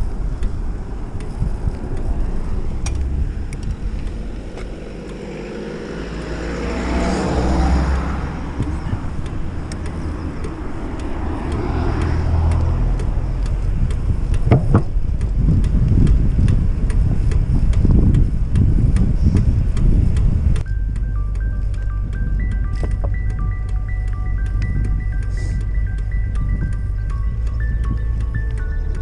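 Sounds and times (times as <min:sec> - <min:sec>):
faint wheel ticks: 0:00.0 - 0:29.0
tyre and road rumble: 0:00.0 - 0:29.0
wind on microphone: 0:00.0 - 0:29.0.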